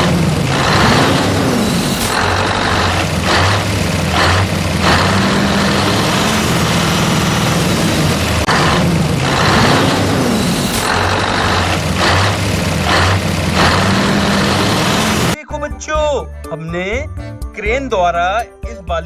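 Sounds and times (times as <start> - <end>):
truck engine running: 0.0 - 15.4
air hiss bursts: 8.4 - 15.0.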